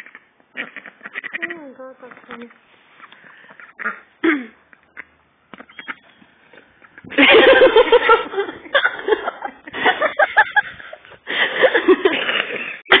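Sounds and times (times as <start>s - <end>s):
person laughing: 7.1s - 13.0s.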